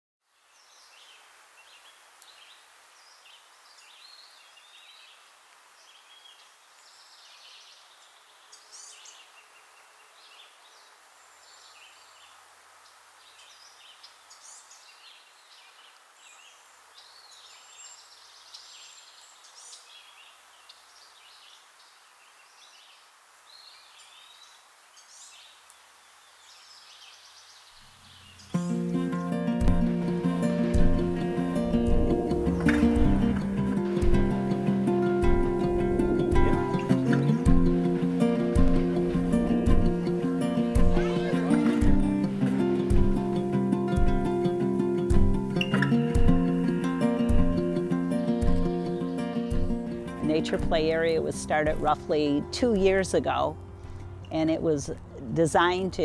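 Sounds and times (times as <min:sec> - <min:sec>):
faint steady hiss: 0:00.2 - 0:56.0
birds singing and chirping: 0:05.8 - 0:12.4, 0:13.3 - 0:56.0.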